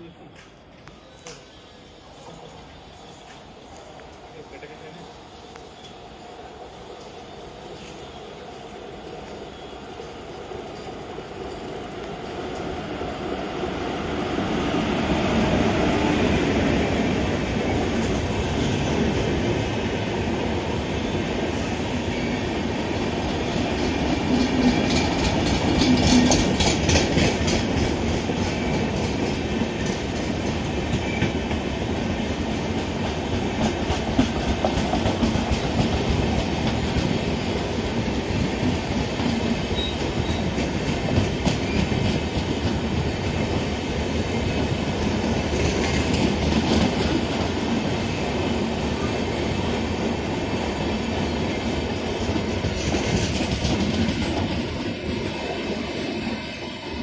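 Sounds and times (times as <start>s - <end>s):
train wheels rushing on rails: 0.4s - 57.0s
wheels clacking over rail joints: 23.8s - 31.6s.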